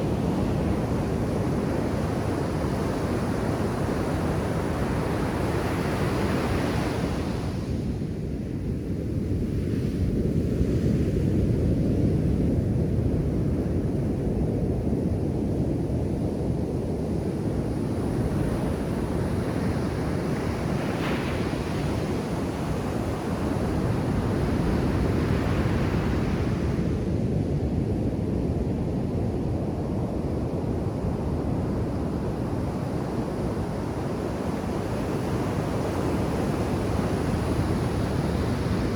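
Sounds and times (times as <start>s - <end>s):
ocean surf breaking on beach: 18.9s - 27.0s.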